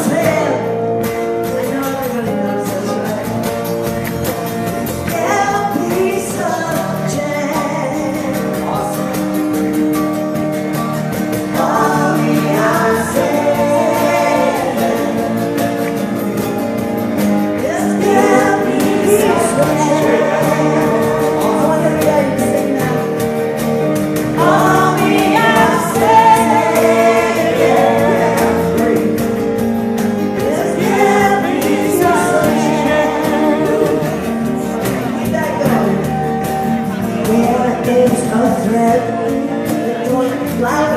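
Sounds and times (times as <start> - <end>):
guitar accompaniment: 0.0 - 40.9
voices singing in harmony: 11.3 - 36.2.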